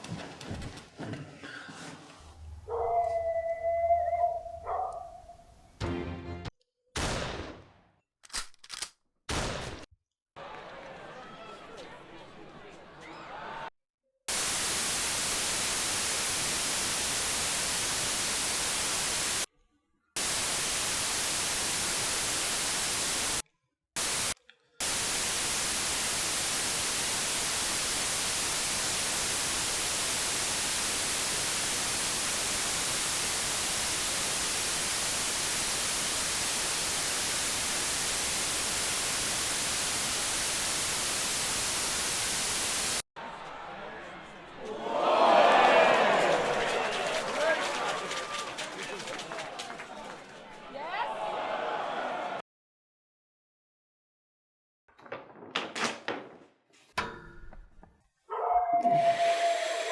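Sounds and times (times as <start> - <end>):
white noise static hiss: 14.3 - 19.5, 20.2 - 23.4, 24.0 - 43.0.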